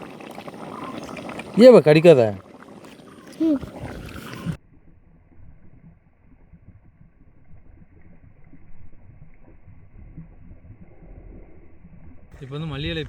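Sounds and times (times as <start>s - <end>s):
muffled low rumbling: 3.8s - 13.0s.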